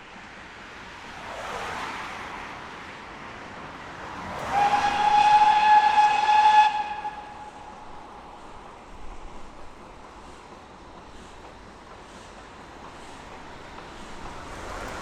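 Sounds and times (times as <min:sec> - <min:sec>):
steam locomotive whistle blast: 0:04.4 - 0:08.1.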